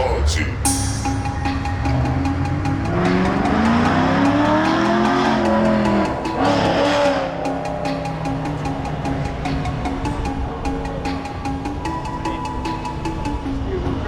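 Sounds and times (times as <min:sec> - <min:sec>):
background music with beat: 0:00.0 - 0:14.0
car engine revving: 0:01.7 - 0:10.2.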